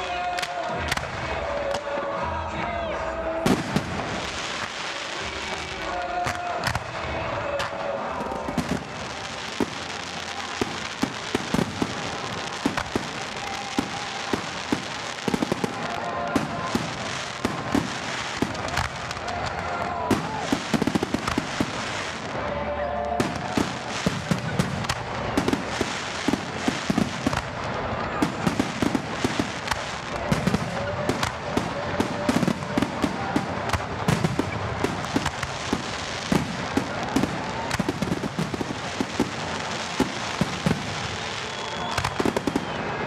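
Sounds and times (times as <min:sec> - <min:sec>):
fireworks bangs and crackles: 0:00.0 - 0:43.0
continuous hiss: 0:03.2 - 0:43.0.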